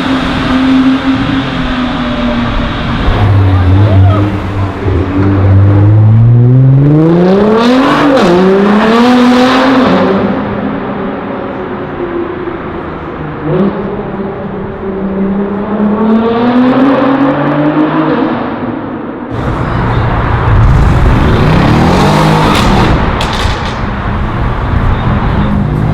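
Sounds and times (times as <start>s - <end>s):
car engine revving: 0.0s - 11.0s, 19.3s - 25.9s
car engine accelerating: 0.0s - 18.6s, 19.3s - 25.9s.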